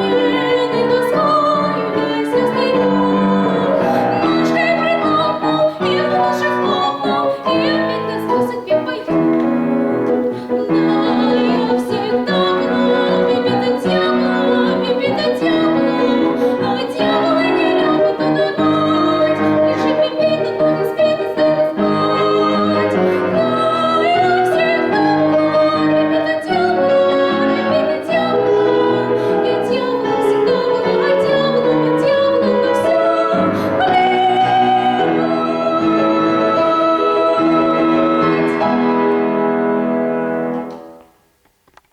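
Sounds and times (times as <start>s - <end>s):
girl singing with vibrato: 0.0s - 9.2s, 10.4s - 38.8s
instrumental accompaniment: 0.0s - 41.9s.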